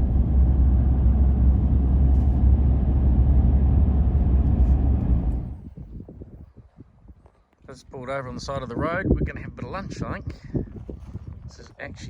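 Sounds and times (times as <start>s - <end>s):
engine and tyre rumble: 0.0s - 5.8s.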